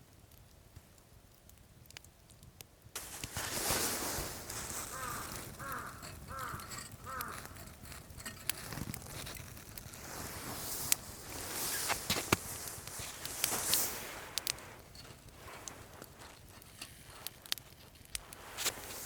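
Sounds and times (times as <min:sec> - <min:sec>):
steady outdoor hiss: 0:00.0 - 0:19.0
bird calling: 0:04.8 - 0:07.6.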